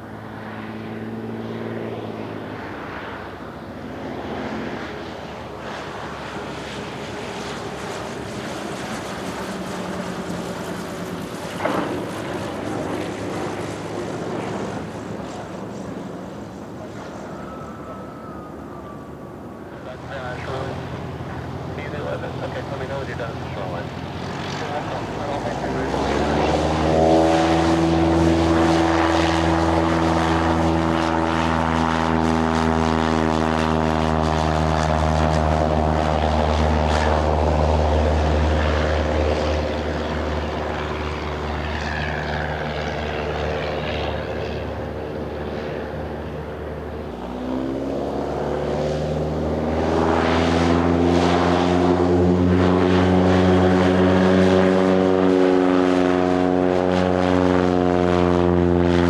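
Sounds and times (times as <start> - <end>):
propeller plane engine droning: 0.0 - 59.0
second plane engine powering up: 0.0 - 59.0.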